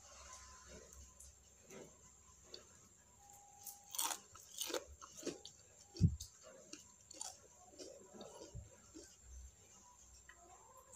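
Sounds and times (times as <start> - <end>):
person chewing crunchy food: 3.6 - 10.4.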